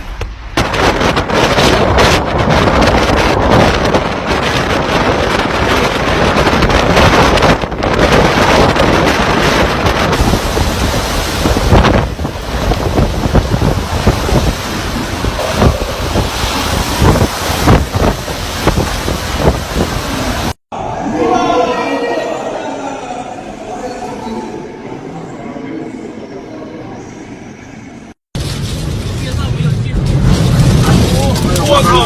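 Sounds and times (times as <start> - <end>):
strong wind buffeting microphone: 0.0 - 20.6
rain: 0.6 - 20.6, 28.4 - 32.0.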